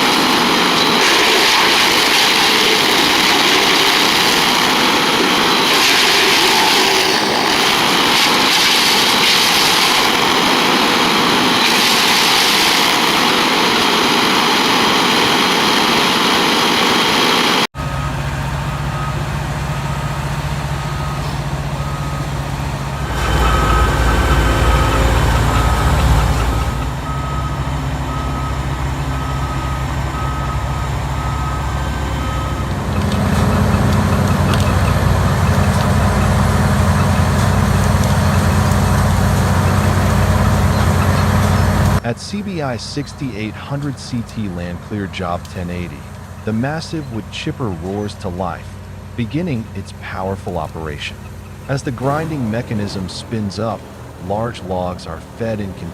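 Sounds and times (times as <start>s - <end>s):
wood chipper chipping: 0.0s - 44.3s
diesel machine engine: 0.0s - 55.9s
reversing alarm beeping: 10.1s - 55.9s.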